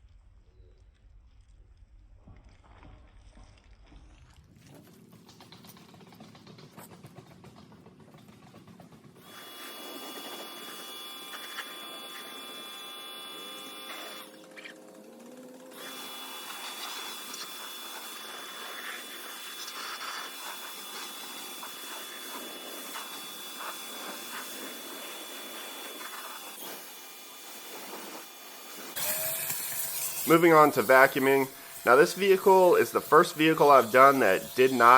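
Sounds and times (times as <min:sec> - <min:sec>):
small electric motor whining: 0:09.2 - 0:34.9.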